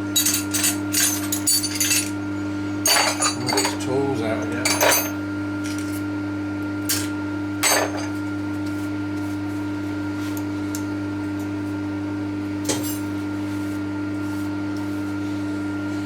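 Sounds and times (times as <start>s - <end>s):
machine hum: 0.0s - 8.4s
metal hand tools clinking: 0.2s - 2.1s, 2.9s - 3.9s, 4.6s - 5.2s.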